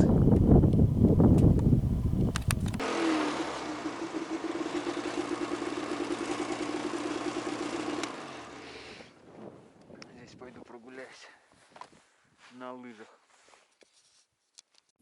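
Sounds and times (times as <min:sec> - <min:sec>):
snowmobile engine idling: 0:00.0 - 0:09.1
switch click: 0:00.3 - 0:02.8.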